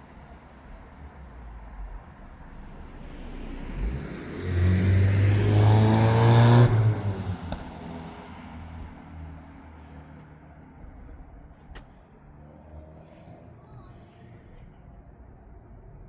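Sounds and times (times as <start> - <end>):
vehicle engine accelerating: 0.7 - 10.2.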